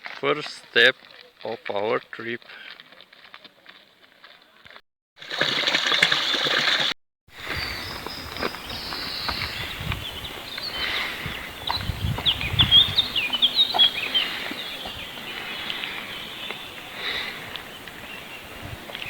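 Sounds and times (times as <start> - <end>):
songbird chirping and trilling: 7.4 - 19.0.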